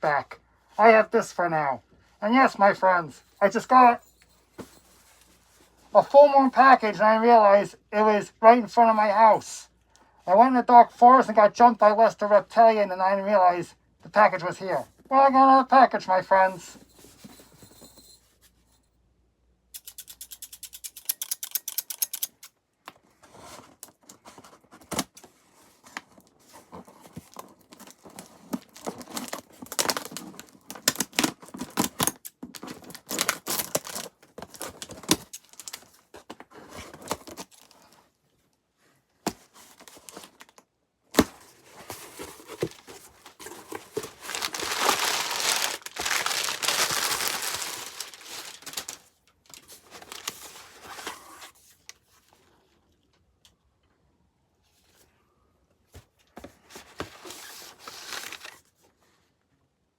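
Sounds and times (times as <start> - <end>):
packaging tearing and crinkling: 27.2 - 36.0, 41.9 - 51.1, 57.4 - 58.6.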